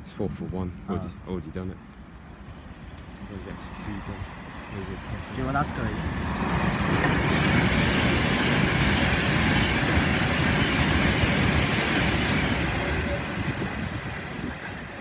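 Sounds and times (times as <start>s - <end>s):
train passing at speed: 1.8s - 15.0s.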